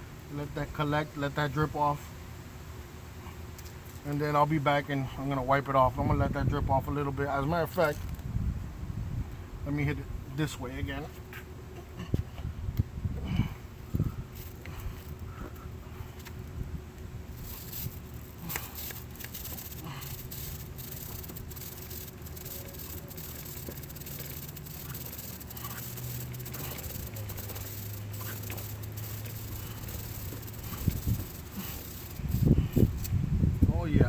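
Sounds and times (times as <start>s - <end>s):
chain clicks and rattles: 7.7s - 8.3s, 14.0s - 15.6s, 17.3s - 33.2s
aerosol spray hissing: 17.2s - 33.2s.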